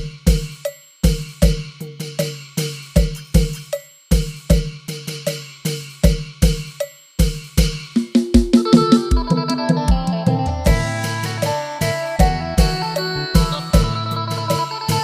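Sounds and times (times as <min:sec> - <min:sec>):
higher-pitched drum strokes: 0:00.0 - 0:15.0
bright cymbal ringing: 0:08.0 - 0:15.0
melody: 0:08.2 - 0:15.0
deep bass drum strokes: 0:10.7 - 0:14.0.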